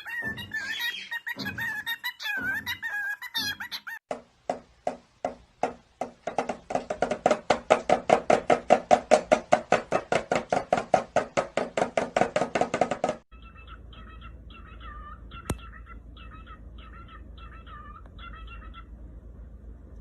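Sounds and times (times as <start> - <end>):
rapid short knocks: 4.1 - 13.3.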